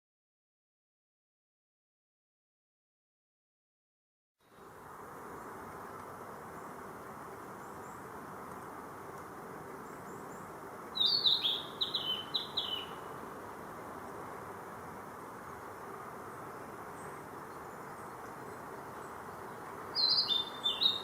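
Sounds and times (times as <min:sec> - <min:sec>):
background hiss: 0:04.4 - 0:21.0
bird singing: 0:09.8 - 0:13.2, 0:16.3 - 0:21.0.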